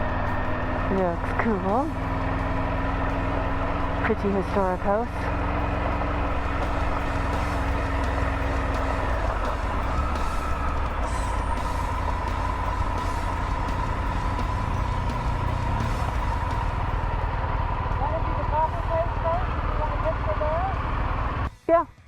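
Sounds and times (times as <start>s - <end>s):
motorcycle engine rumble: 0.0s - 21.5s
thin whine: 0.0s - 21.5s.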